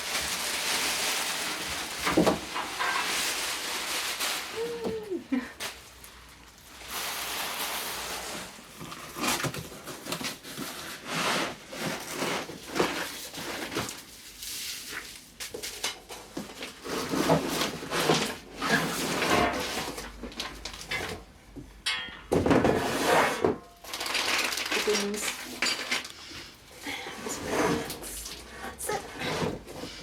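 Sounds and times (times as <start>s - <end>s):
rustling: 0.0s - 21.1s
packaging and parts clattering: 0.0s - 21.3s, 22.0s - 26.6s.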